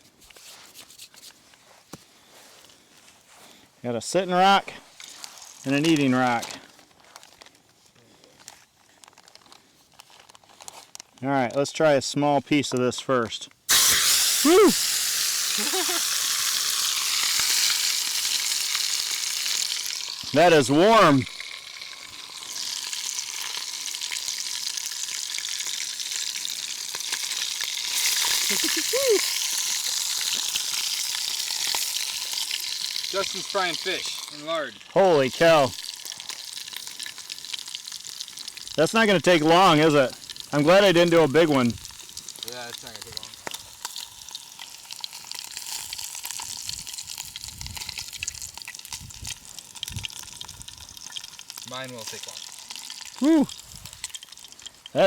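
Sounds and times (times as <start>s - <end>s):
fish sizzling in hot fat: 4.9s - 6.4s, 13.7s - 55.0s
crackling pops: 13.7s - 55.0s.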